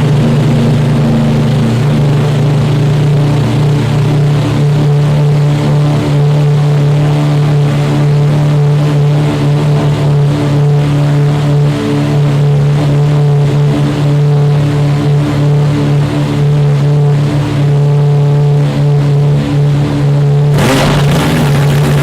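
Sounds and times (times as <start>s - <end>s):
engine running loud and steady: 0.0s - 22.0s.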